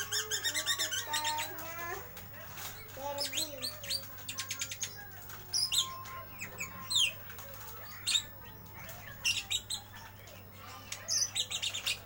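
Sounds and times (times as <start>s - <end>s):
bird chirping and squeaking: 0.0s - 1.7s, 2.6s - 7.2s, 7.8s - 10.2s, 11.0s - 12.0s.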